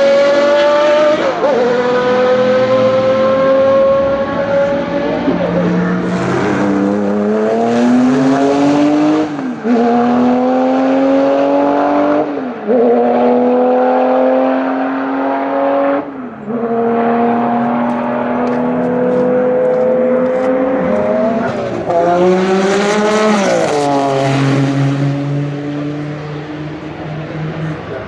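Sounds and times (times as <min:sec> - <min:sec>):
racing car engine accelerating: 0:00.0 - 0:28.0.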